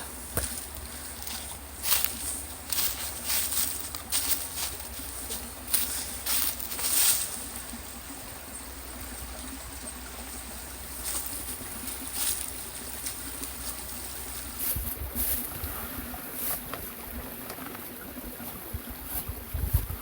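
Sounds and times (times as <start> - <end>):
wind rumble on microphone: 14.5 - 20.0.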